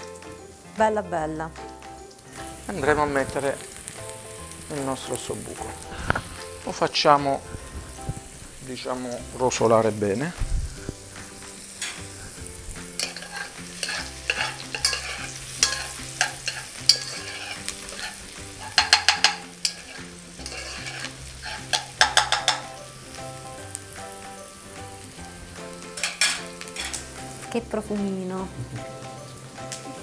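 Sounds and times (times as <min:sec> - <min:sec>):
meat sizzling in oil: 0:01.6 - 0:30.0
metal spoon scraping pot: 0:13.0 - 0:22.8, 0:26.0 - 0:27.0.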